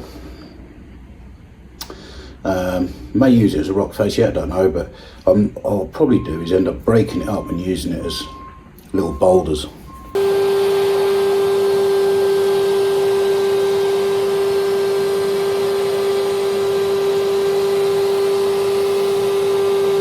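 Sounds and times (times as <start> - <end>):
electric blower humming: 10.2 - 20.0.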